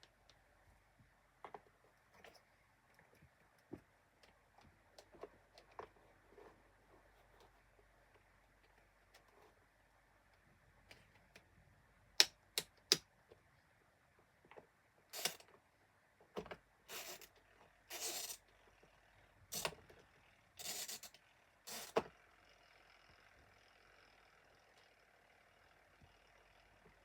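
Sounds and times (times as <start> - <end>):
fan motor hum: 19.4 - 27.0.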